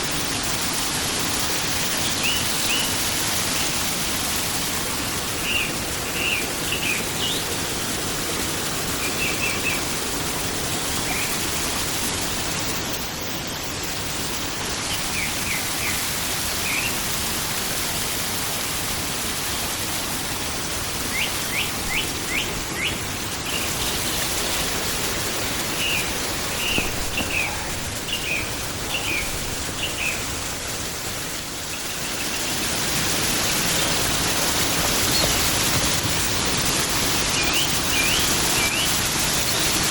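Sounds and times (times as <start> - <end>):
stream rushing: 0.0 - 39.9
small birds chirping: 1.6 - 7.6, 14.7 - 17.1, 21.0 - 39.9.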